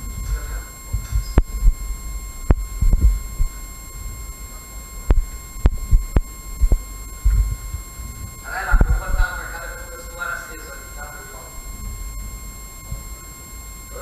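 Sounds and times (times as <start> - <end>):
low thuds and rumble: 0.0 - 4.4, 5.0 - 9.3.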